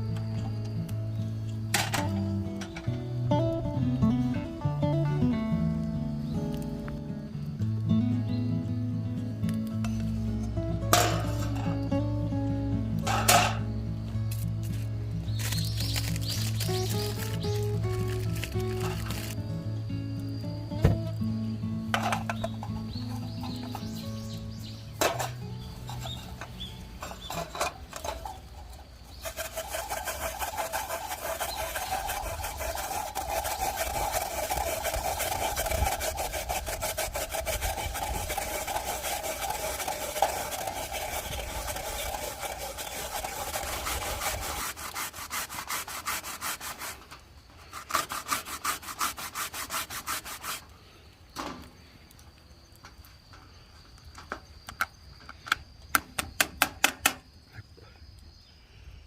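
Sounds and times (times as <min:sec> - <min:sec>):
rasping strokes: 0:14.6 - 0:19.4, 0:22.2 - 0:50.7.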